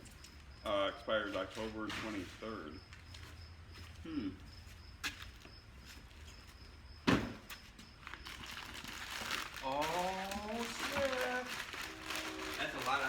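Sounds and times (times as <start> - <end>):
loud thump: 7.0 - 7.4.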